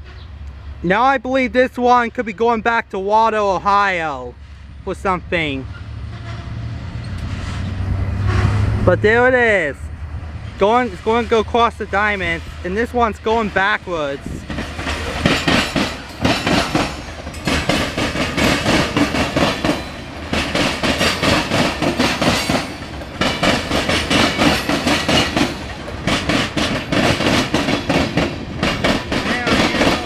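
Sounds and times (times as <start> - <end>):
low rumble of rolling train: 0.0 - 30.0
train wheels clattering over crossings: 10.2 - 30.0.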